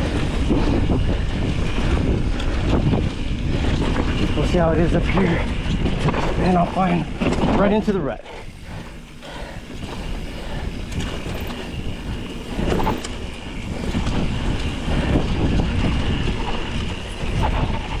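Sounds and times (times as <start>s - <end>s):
bike knocking and rattling: 0.0s - 18.0s
wind on microphone: 0.0s - 18.0s
tyres on dirt: 8.4s - 18.0s.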